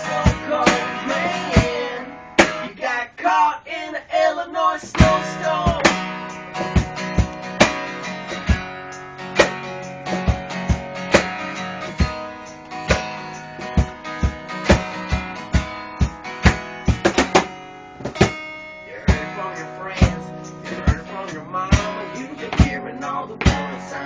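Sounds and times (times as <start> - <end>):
cajon beat: 0.0 - 2.8, 4.8 - 24.0
acoustic guitar strummed and picked: 0.0 - 3.4, 4.8 - 24.0.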